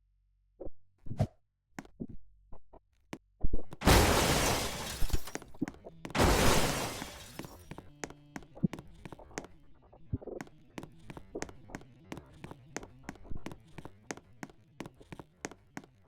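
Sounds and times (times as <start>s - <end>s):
loud shattering crashes: 3.8s - 5.5s, 6.2s - 7.6s.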